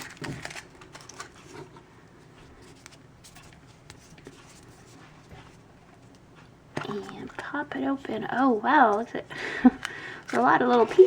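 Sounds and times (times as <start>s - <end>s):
foil wrapper rustling: 0.0s - 1.7s.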